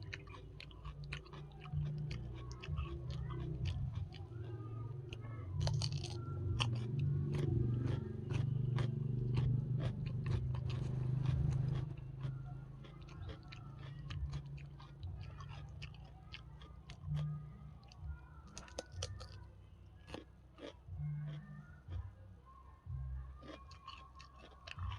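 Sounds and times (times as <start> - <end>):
person chewing and biting food: 0.0 - 17.9, 18.5 - 19.4, 20.0 - 21.5, 23.4 - 24.9.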